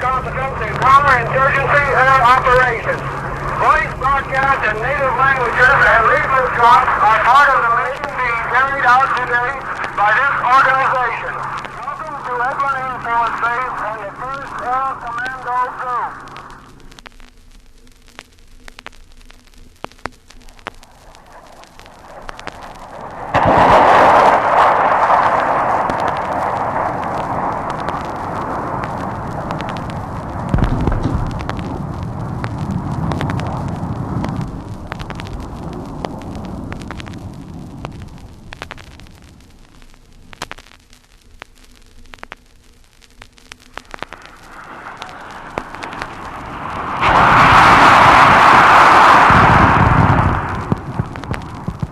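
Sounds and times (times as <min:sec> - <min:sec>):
broad rushing noise: 0:00.0 - 0:16.8, 0:20.4 - 0:39.5, 0:43.6 - 0:51.9
aircraft engine noise: 0:00.0 - 0:17.0, 0:20.5 - 0:38.2, 0:43.7 - 0:51.9
low rumble: 0:00.0 - 0:51.9
vinyl clicks and pops: 0:09.1 - 0:10.1, 0:11.2 - 0:48.6, 0:49.3 - 0:51.9.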